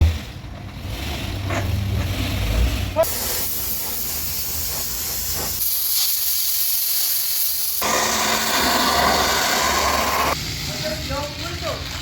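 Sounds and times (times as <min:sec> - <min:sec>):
pressure washer spray hissing: 0:03.0 - 0:10.4.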